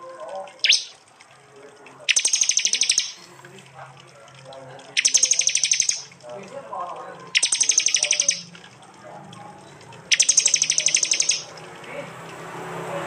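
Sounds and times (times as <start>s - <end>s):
bird rattling bursts: 2.1s - 3.3s, 4.9s - 6.2s, 7.3s - 8.6s, 10.1s - 11.7s
bird sharp downward note: 2.1s - 3.3s, 5.0s - 6.1s, 7.4s - 8.5s, 10.1s - 11.5s.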